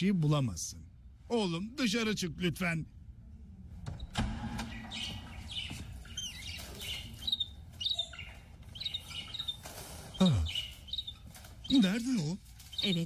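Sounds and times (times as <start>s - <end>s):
birds chirping: 4.0s - 13.0s.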